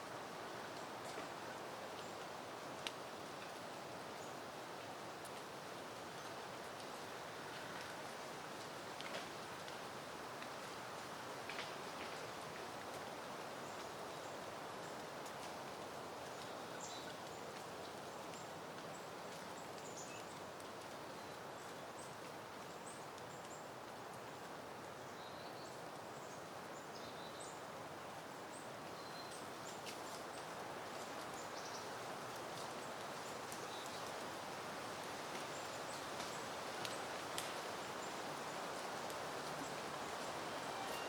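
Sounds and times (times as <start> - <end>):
leaves rustling: 0.0 - 41.0
wind hiss: 30.0 - 41.0
high bird chirps: 40.6 - 41.0.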